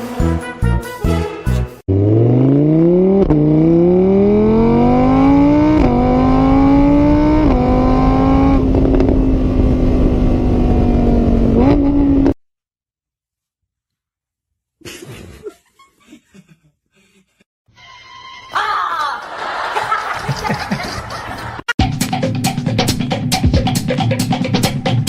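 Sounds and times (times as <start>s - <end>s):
car engine accelerating hard: 1.9s - 12.4s.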